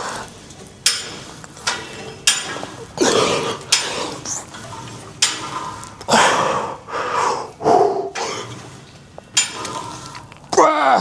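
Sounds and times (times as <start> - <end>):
weight plates clinking: 0.4 - 6.3, 8.2 - 10.3
person breathing heavily: 5.5 - 8.6.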